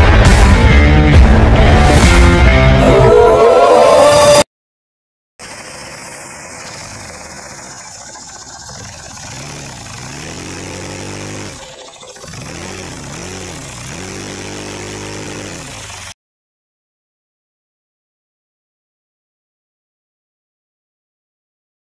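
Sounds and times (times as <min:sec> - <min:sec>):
vacuum engine hissing and humming: 0:05.8 - 0:16.1.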